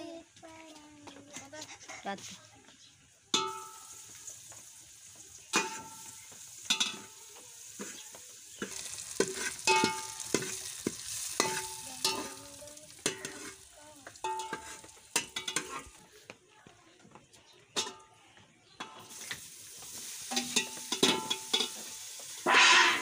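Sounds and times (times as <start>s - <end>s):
spices sizzling in oil: 1.4s - 16.2s, 18.6s - 23.0s
metal ladle scraping and knocking pot: 8.6s - 12.4s, 13.0s - 16.0s, 20.3s - 23.0s.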